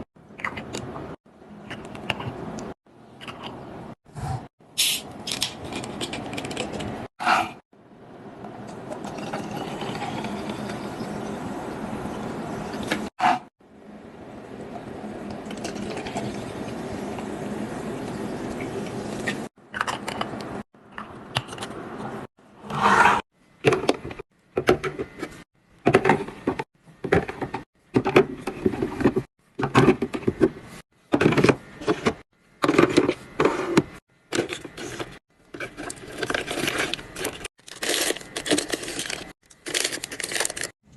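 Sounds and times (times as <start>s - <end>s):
packaging rustling and scraping: 32.8s - 40.8s.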